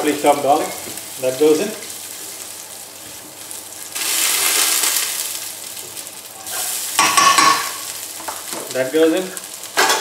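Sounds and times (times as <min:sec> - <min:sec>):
garlic and spices sizzling in oil: 0:00.0 - 0:10.0.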